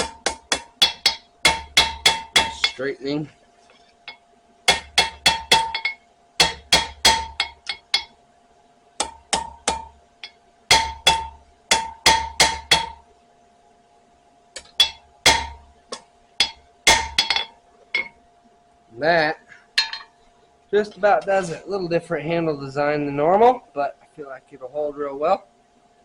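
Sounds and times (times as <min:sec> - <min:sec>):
hammer striking steel blade on anvil: 0:00.0 - 0:02.8, 0:04.1 - 0:08.2, 0:09.0 - 0:13.0, 0:14.6 - 0:18.2, 0:19.8 - 0:20.1.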